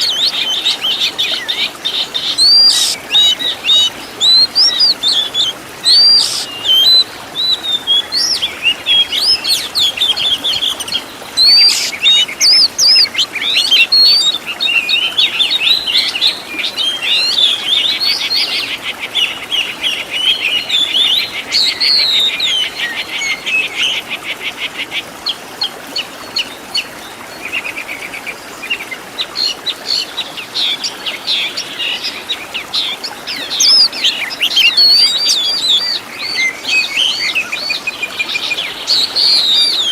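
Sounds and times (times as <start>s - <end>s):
rapid rattling bird trills: 2.2s - 6.8s
bird singing whistled notes: 2.3s - 18.5s, 32.8s - 39.9s.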